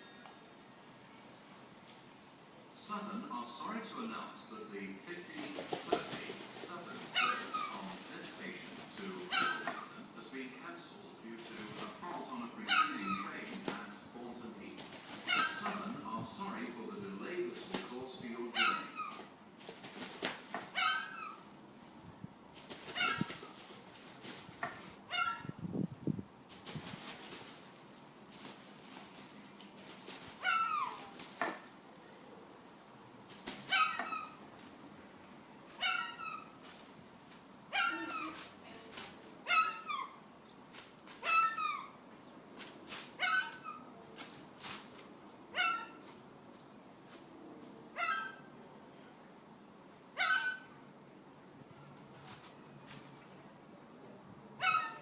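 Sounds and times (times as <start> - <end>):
birds calling with descending cries: 11.8 - 13.4, 15.1 - 19.3, 30.3 - 31.2, 33.7 - 34.5.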